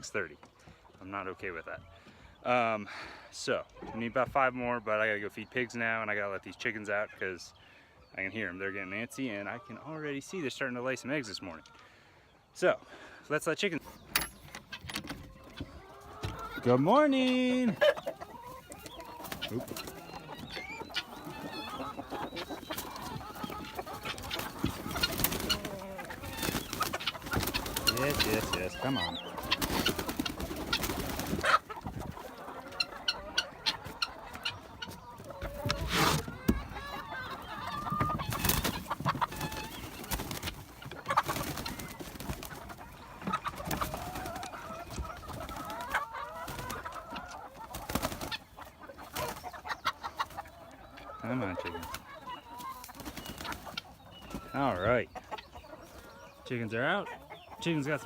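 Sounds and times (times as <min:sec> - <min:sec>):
hens clucking: 0:00.0 - 0:58.0
wings flapping: 0:19.0 - 0:20.1, 0:20.8 - 0:32.3, 0:38.0 - 0:47.0, 0:47.6 - 0:48.5, 0:52.8 - 0:54.5.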